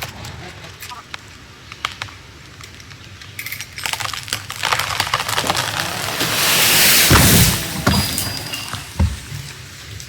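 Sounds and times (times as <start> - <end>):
tree trunk cracking and splintering: 3.8 - 9.7
branches rushing through air: 5.3 - 8.9.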